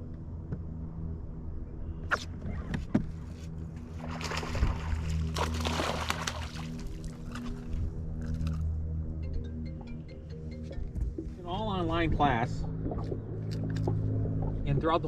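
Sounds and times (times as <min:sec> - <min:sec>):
boat motor running: 0:00.0 - 0:15.0
water splashing: 0:03.9 - 0:08.6.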